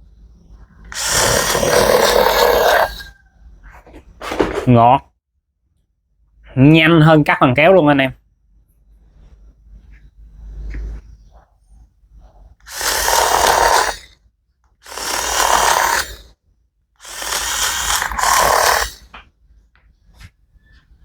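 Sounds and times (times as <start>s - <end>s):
electric leather cutter running: 1.0s - 3.0s, 12.7s - 14.1s, 14.8s - 16.3s, 17.0s - 19.1s.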